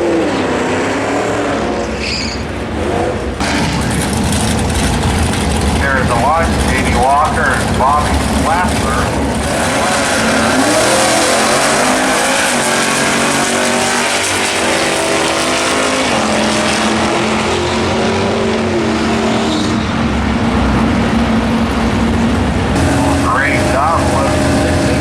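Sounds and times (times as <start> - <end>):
drag racing cars accelerating: 0.0 - 25.0.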